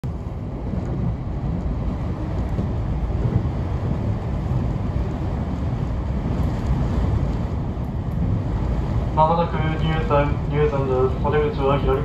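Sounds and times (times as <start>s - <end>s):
electric train rumble: 0.0s - 12.0s.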